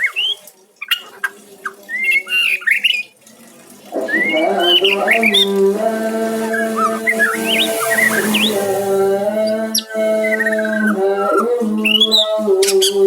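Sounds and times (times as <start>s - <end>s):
low humming tone: 5.4s - 9.8s
bird singing whistled notes: 6.4s - 9.8s.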